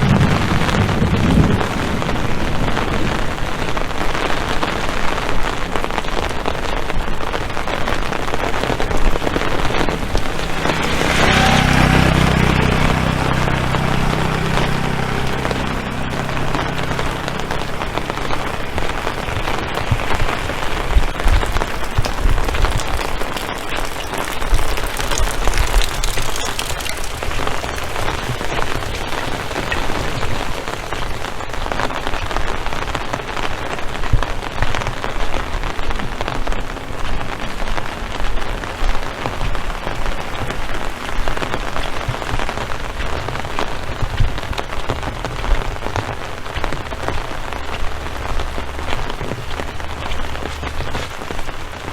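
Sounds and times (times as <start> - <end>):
heavy rain hiss: 0.0 - 51.9
low thumps: 8.3 - 23.1.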